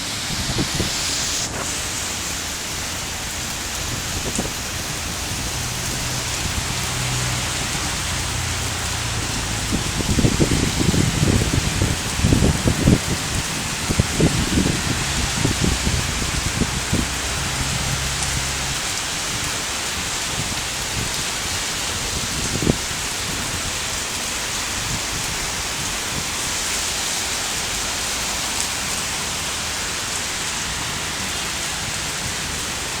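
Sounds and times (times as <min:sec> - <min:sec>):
rain falling steadily: 0:00.0 - 0:33.0.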